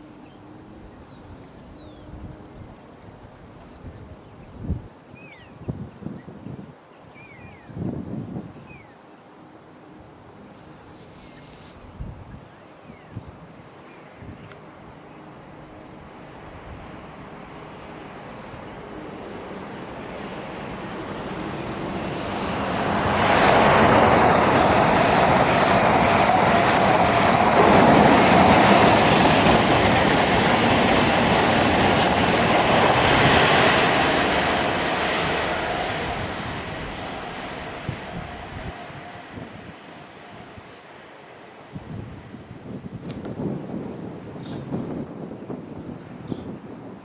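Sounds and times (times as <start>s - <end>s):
train passing: 14.5s - 46.7s.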